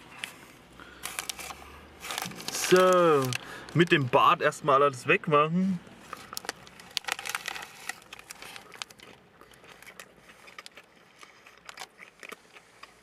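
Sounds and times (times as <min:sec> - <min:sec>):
paper wrapper crinkling: 0:00.1 - 0:04.2, 0:06.0 - 0:12.4
chewing food: 0:06.1 - 0:13.0.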